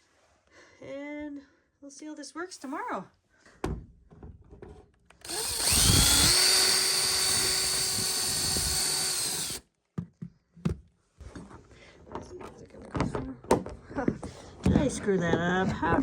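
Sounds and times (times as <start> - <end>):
electric drill whining: 5.2 - 9.6.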